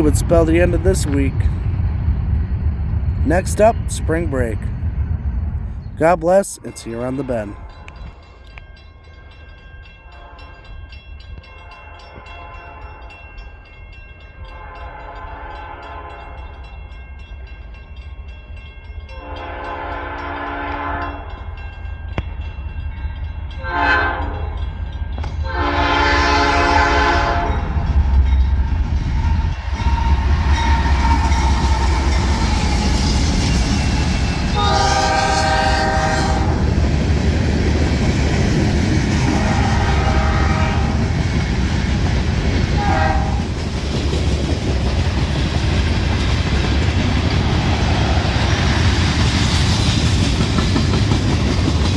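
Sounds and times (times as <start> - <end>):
train engine and rail rumble: 0.0 - 51.9
locomotive air horn: 19.2 - 21.2, 23.7 - 24.4, 25.5 - 27.6, 34.6 - 36.6, 39.3 - 41.0, 42.8 - 43.4.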